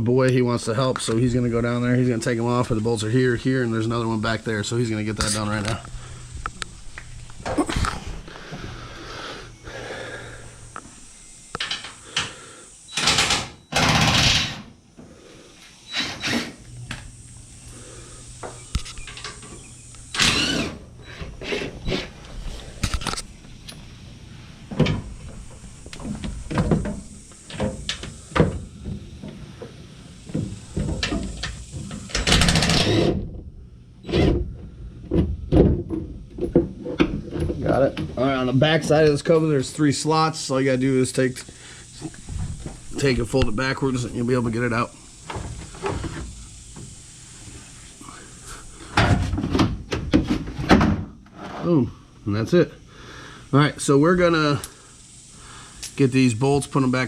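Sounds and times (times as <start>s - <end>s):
steady low hum: 0.0s - 57.0s
loud noisy bursts: 3.8s - 14.7s, 15.9s - 20.9s.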